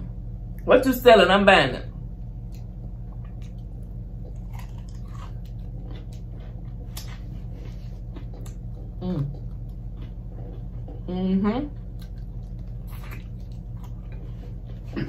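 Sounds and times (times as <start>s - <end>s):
steady low hum: 0.0s - 15.0s
chewing crispy fried chicken: 2.4s - 11.1s, 11.7s - 15.0s.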